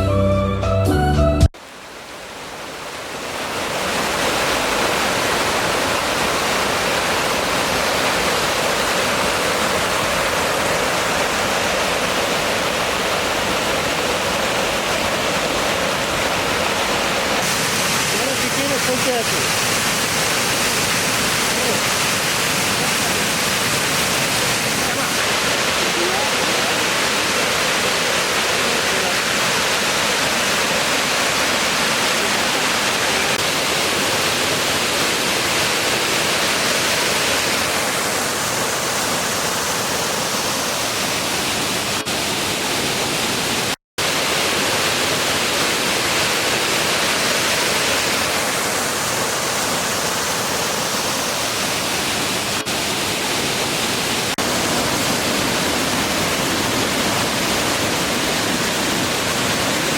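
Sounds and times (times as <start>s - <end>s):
waterfall rushing: 1.6s - 59.9s.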